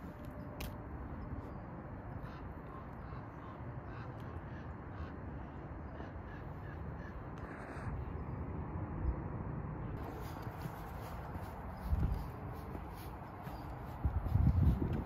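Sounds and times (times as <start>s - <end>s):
bird calling: 1.5s - 8.3s.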